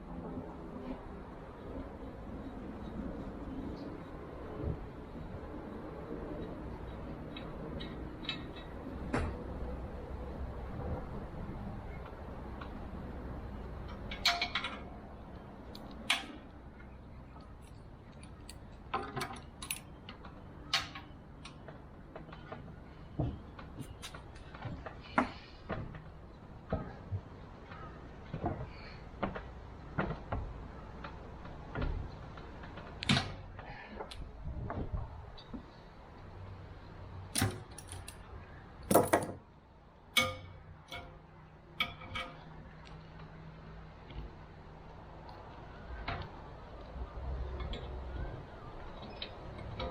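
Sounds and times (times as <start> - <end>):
metal tools and parts clinking: 17.6 - 20.0, 37.4 - 38.2, 38.8 - 39.4, 41.8 - 42.5.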